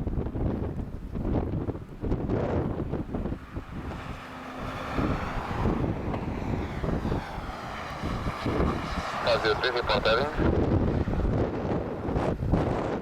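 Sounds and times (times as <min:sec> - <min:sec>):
wind buffeting microphone: 0:00.0 - 0:13.0
jet engines whining: 0:03.2 - 0:13.0.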